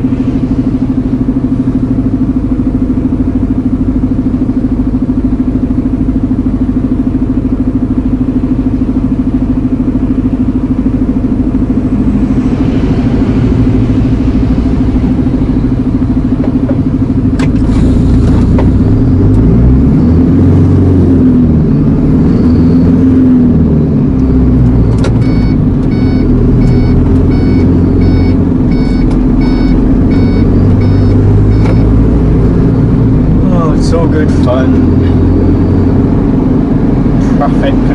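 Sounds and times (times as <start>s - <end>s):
lorry diesel engine running: 0.0s - 37.9s
short electronic beeps: 21.7s - 23.1s, 25.2s - 33.0s, 34.5s - 36.1s.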